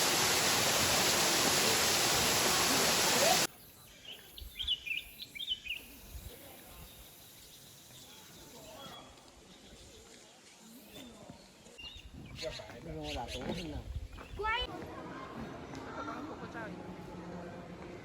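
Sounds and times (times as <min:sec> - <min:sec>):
water rushing: 0:00.0 - 0:03.5.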